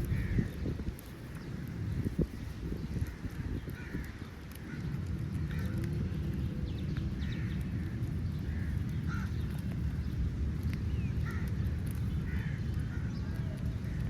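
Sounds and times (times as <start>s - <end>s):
crows cawing: 0.0s - 1.7s, 2.9s - 6.1s, 7.2s - 10.1s, 11.2s - 14.0s
steady low rumble: 0.0s - 14.0s.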